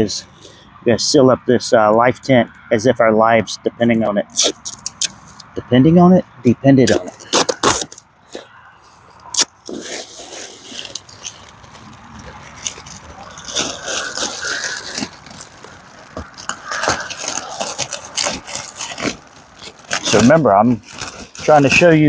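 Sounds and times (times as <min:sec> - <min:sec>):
plastic sheeting crinkling: 0:09.4 - 0:22.0.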